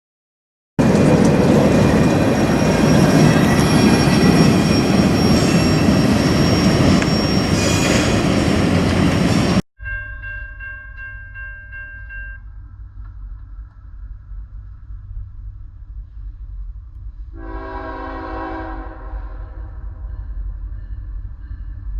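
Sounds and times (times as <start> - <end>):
train rolling noise: 0.8 - 9.6
wheel squeal: 0.9 - 9.6
quiet low rumble: 10.2 - 17.5.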